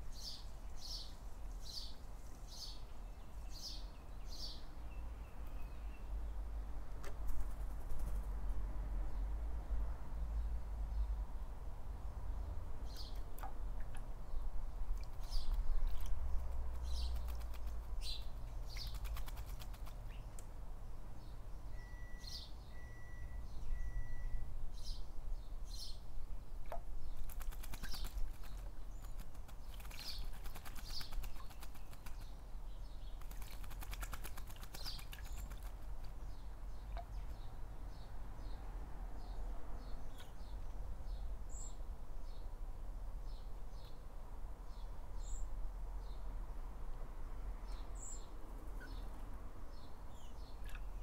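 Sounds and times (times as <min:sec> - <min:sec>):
bird splashing in water: 0:13.0 - 0:14.1, 0:14.9 - 0:20.5, 0:26.6 - 0:32.3, 0:33.1 - 0:36.1
wings flapping: 0:16.8 - 0:18.0, 0:18.8 - 0:20.0, 0:27.2 - 0:32.3, 0:33.2 - 0:35.8.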